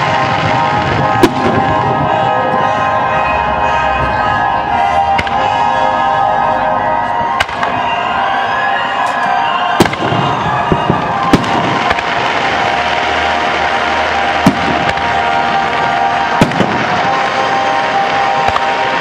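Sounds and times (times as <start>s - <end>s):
sharp firework bangs: 0.0s - 2.9s, 7.2s - 8.0s, 9.4s - 19.0s
fireworks crackling: 0.0s - 19.0s.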